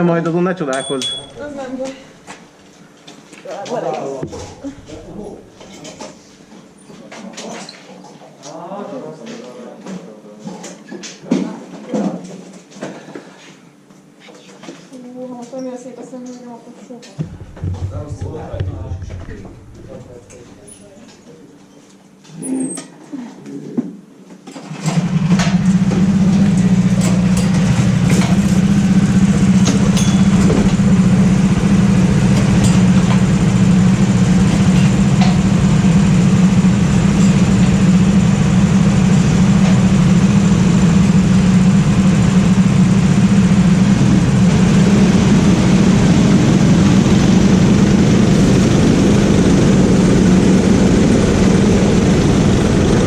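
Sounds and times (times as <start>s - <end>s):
go-kart engine running: 1.1s - 2.2s, 4.3s - 5.6s, 17.2s - 20.6s, 24.7s - 53.0s.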